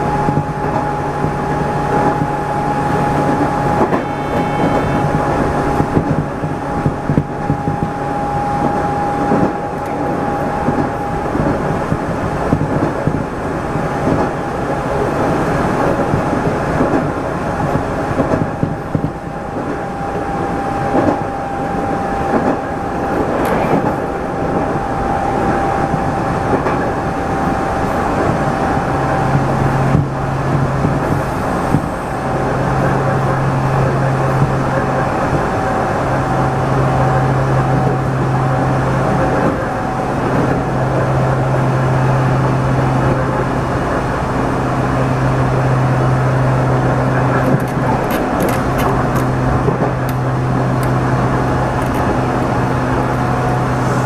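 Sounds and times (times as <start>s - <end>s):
thin steady whine: 0.0s - 12.7s, 18.8s - 30.4s
brief high-pitched tone: 3.6s - 5.7s
train wheels clattering over rails: 46.7s - 54.0s.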